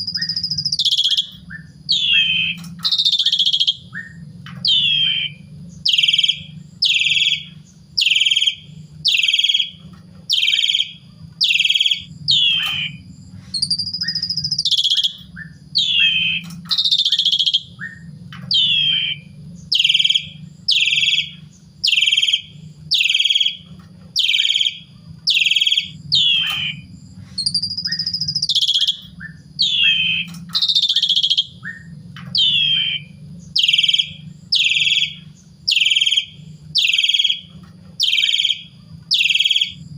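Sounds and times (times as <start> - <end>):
starling singing whistled notes: 0.0 - 39.9
steady low hum: 0.0 - 39.9.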